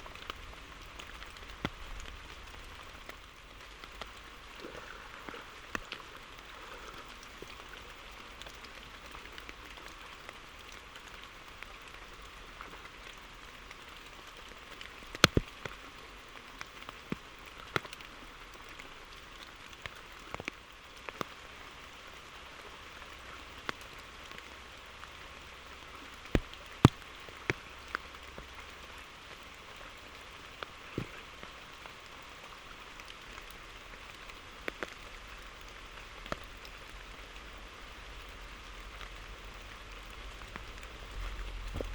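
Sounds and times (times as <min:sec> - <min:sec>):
steady rain hiss: 0:00.0 - 0:41.9
sharp taps and clicks: 0:15.2 - 0:15.5.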